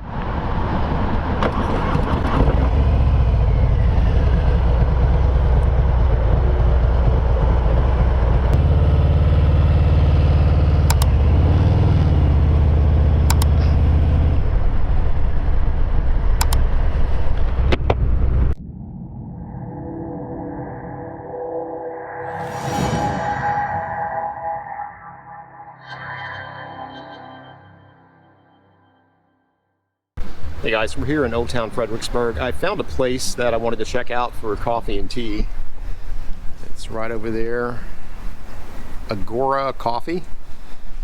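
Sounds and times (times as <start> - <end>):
motorcycle engine running loud: 1.5 - 16.4.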